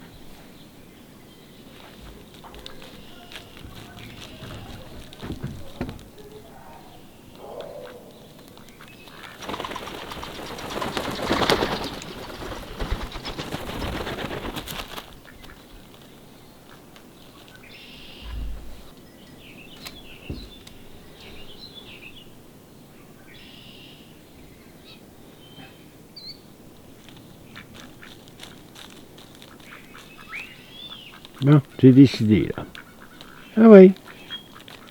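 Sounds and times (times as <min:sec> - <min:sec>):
duck wings flapping: 0:01.7 - 0:07.0, 0:07.8 - 0:17.7, 0:26.9 - 0:34.9.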